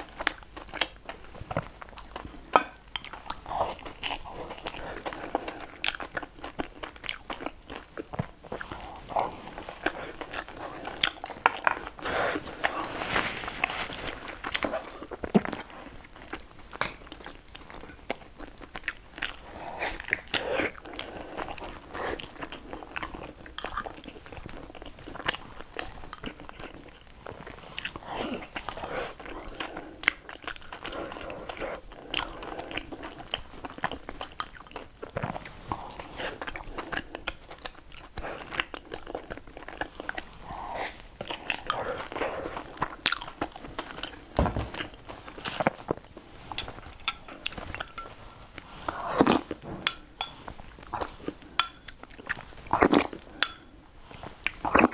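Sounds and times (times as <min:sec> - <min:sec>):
person biting and chewing food: 0:33.1 - 0:54.9.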